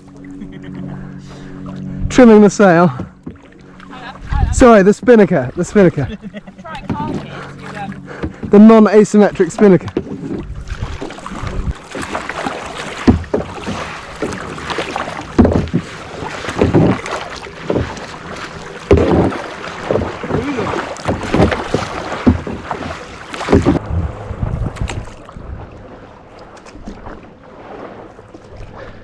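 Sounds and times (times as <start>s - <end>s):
paddle splashing water: 0.0s - 29.0s
wind buffeting microphone: 4.0s - 14.4s, 18.9s - 26.1s.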